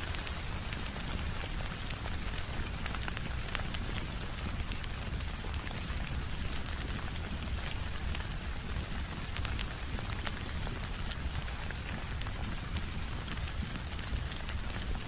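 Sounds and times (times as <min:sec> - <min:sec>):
fireplace crackling: 0:00.0 - 0:15.0
rain on a window pane: 0:00.0 - 0:15.0.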